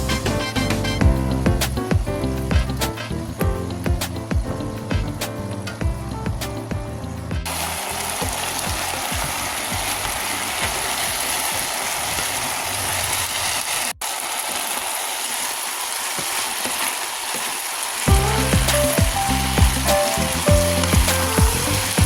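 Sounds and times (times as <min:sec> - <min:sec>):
chicken sizzling in hot oil: 0:07.5 - 0:22.0.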